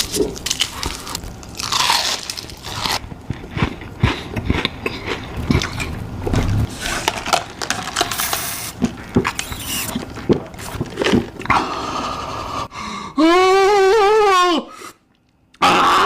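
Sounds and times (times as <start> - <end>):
crunching fried chicken: 0.0 - 3.0.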